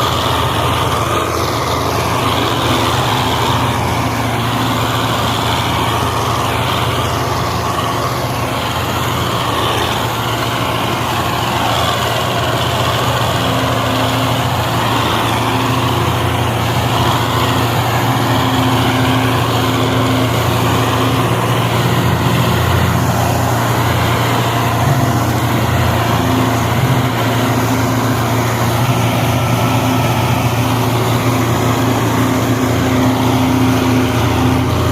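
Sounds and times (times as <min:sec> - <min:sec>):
tractor diesel engine under load: 0:00.0 - 0:34.9.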